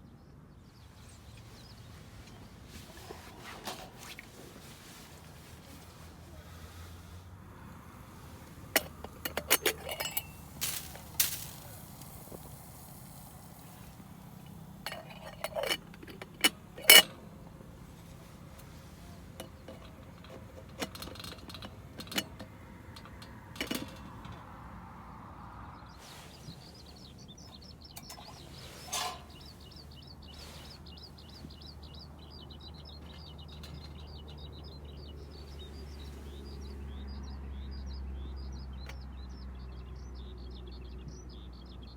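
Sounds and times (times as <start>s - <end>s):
camp dishes clinking and knocking: 1.2s - 7.0s, 7.6s - 24.9s, 26.0s - 32.0s, 32.6s - 35.3s
small bird chirping: 25.8s - 41.9s.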